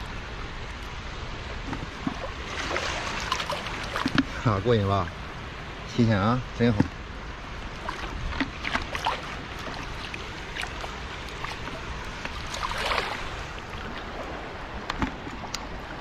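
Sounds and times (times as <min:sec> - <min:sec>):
low wind rumble: 0:00.0 - 0:16.0
seawater sloshing at shoreline: 0:01.4 - 0:06.8, 0:07.4 - 0:16.0
swish of water: 0:01.8 - 0:04.5, 0:07.7 - 0:16.0.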